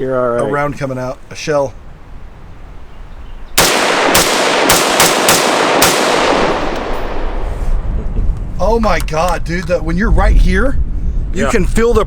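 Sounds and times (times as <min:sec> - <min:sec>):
rifle shots: 0:03.6 - 0:07.8
rolling gunshot echo: 0:03.6 - 0:07.8.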